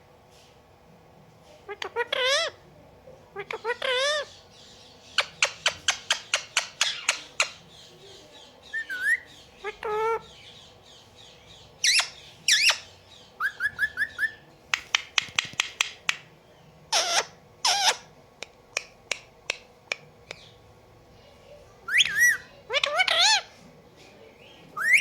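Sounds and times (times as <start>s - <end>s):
parakeet squawks and screeches: 1.7s - 2.6s, 3.4s - 4.4s, 5.1s - 7.6s, 8.7s - 10.4s, 11.8s - 14.4s, 16.9s - 18.1s, 21.9s - 23.5s, 24.8s - 25.0s
parakeet rising chirps: 8.7s - 14.4s, 21.9s - 23.5s.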